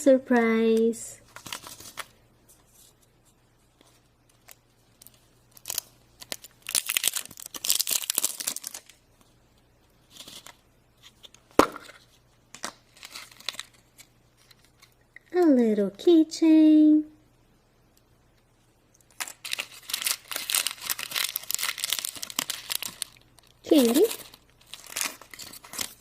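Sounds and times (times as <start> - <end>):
wrapper tearing and crinkling: 1.3 - 2.1, 4.4 - 9.0, 12.9 - 15.0, 19.1 - 26.0.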